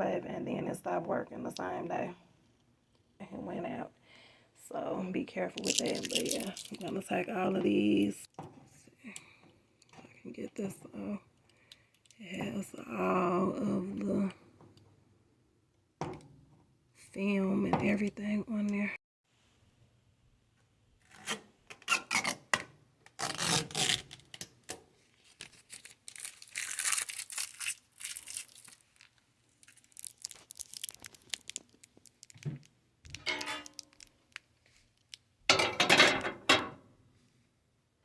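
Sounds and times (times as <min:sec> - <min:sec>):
plastic film peeling and crinkling: 0:05.6 - 0:07.0, 0:23.1 - 0:35.3.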